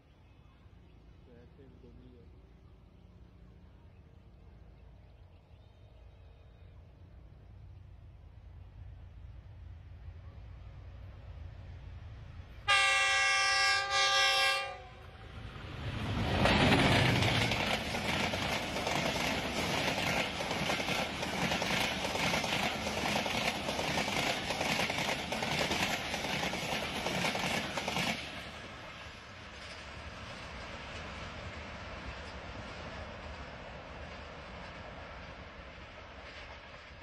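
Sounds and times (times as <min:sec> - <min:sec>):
train rumble and wheel clatter: 0:00.0 - 0:37.0
train horn: 0:12.6 - 0:15.3.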